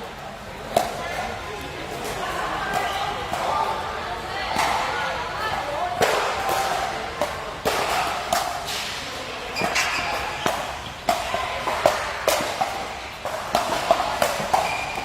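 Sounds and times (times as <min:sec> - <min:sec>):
racket striking ball: 0:09.6 - 0:15.0.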